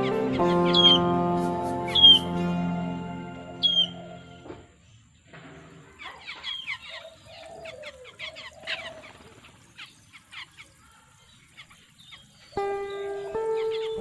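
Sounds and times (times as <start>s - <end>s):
small birds chirping: 0.0s - 2.4s, 3.6s - 14.0s
low wavering bird call: 0.0s - 4.5s
music: 0.0s - 4.6s, 12.6s - 14.0s.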